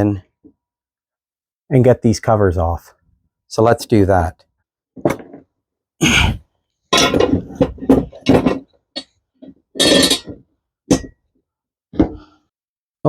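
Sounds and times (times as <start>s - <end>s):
metallic clanks of tools and parts: 6.9s - 11.2s.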